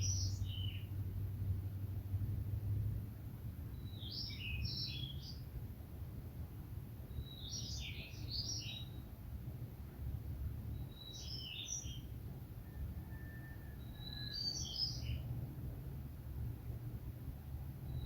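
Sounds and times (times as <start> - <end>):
songbird singing: 0.0 - 1.1, 3.6 - 5.5, 7.0 - 9.2, 10.6 - 15.4.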